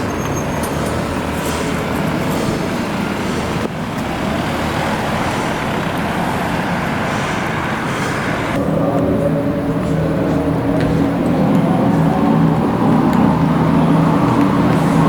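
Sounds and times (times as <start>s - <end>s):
tyre and road noise: 0.0s - 15.0s
low multi-tone hum: 5.9s - 15.0s.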